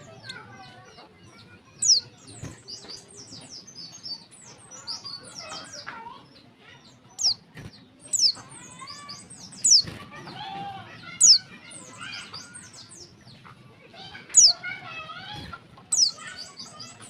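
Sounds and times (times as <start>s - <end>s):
high twittering chirps: 1.3s - 5.9s, 6.8s - 10.0s, 11.0s - 13.3s, 14.1s - 14.8s, 15.9s - 17.0s.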